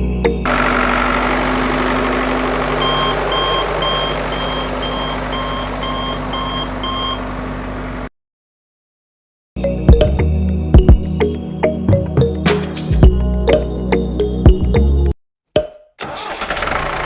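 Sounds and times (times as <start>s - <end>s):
reversing alarm beeps: 2.8s - 7.3s.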